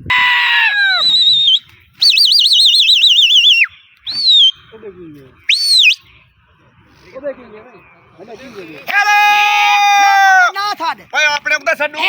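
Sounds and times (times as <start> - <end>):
person whistling: 1.0 - 4.6.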